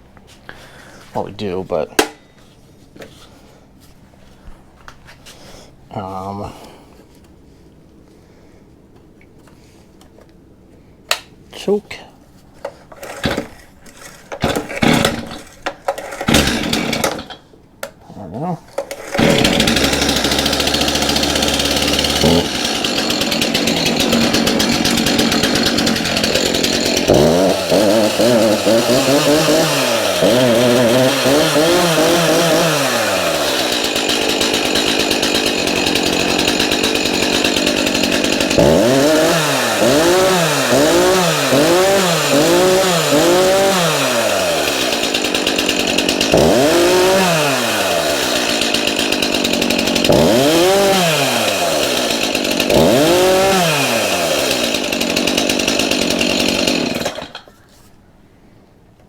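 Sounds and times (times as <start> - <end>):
chainsaw revving: 13.0 - 17.4, 18.8 - 57.5.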